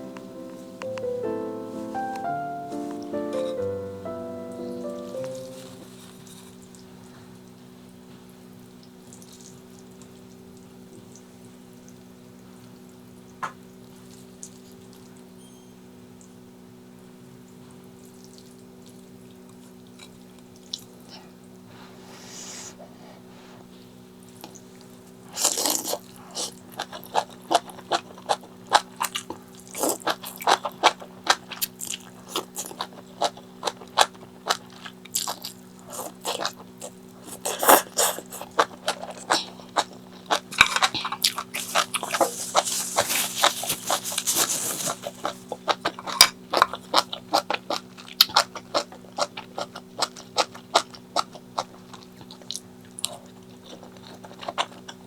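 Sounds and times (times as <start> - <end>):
low electrical hum: 0.0 - 55.0
person chewing and crunching: 24.4 - 55.0
rustling: 41.5 - 45.5.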